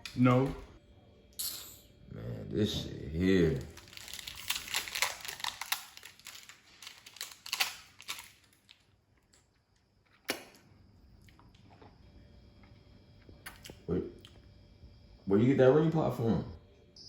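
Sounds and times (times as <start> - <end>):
plastic or paper crinkling: 3.6 - 8.8.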